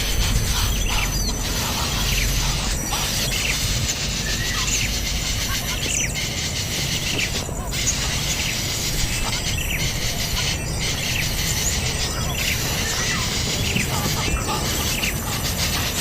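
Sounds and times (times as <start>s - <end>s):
steady outdoor hiss: 0.0s - 16.0s
wild birds chirping: 0.0s - 16.0s.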